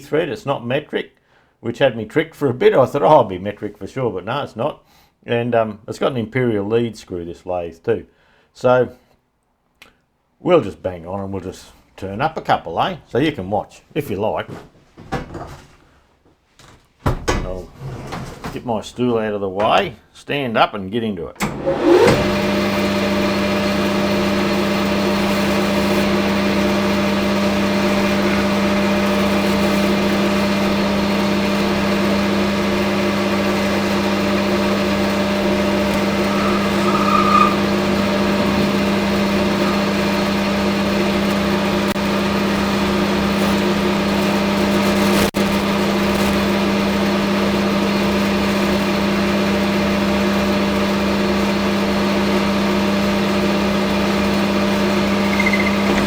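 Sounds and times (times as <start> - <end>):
metal lathe running: 21.6 - 44.8, 50.7 - 56.0.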